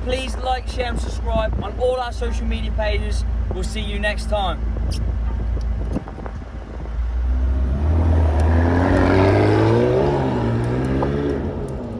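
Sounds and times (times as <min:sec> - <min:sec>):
sports car engine revving: 0:04.7 - 0:11.9.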